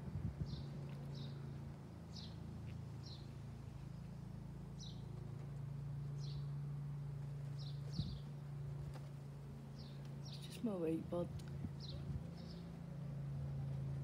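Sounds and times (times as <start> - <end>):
steady low hum: 0.0 - 14.0
small bird chirping: 0.4 - 4.2, 6.1 - 6.6, 7.5 - 8.4, 9.8 - 11.0, 11.6 - 12.8.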